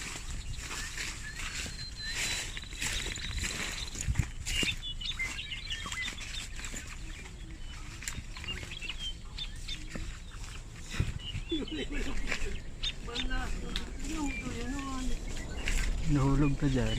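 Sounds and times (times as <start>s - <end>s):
birds chirping: 0.0s - 16.9s
low rumble: 10.2s - 16.9s.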